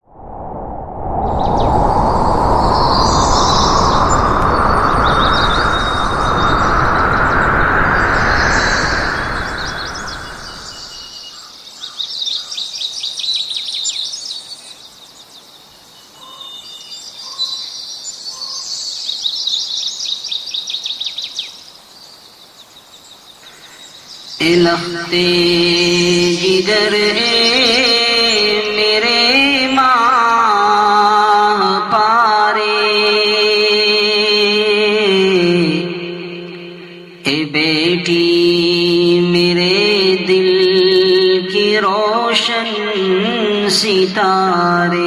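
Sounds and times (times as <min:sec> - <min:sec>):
loud rushing noise rising in pitch: 0:00.0 - 0:11.1
birds chirping and trilling: 0:01.1 - 0:45.0.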